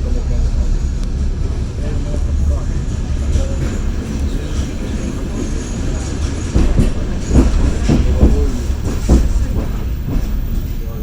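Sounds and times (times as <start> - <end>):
train wheels rumbling and clacking: 0.0 - 11.0
sharp knocks: 6.6 - 10.5.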